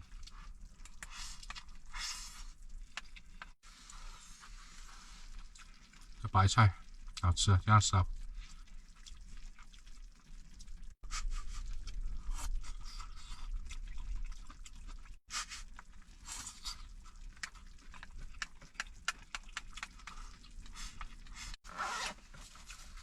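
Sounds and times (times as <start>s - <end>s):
chewing and crunching: 0.0s - 7.2s, 8.2s - 23.0s.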